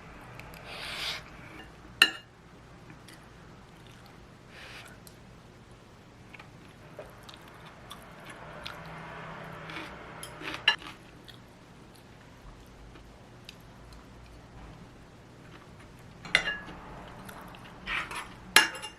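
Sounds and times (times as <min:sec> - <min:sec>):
dishes and utensils clinking: 0:01.6 - 0:02.3, 0:09.8 - 0:10.8, 0:16.2 - 0:16.8, 0:17.4 - 0:18.9
soft rushing noise: 0:07.4 - 0:10.7.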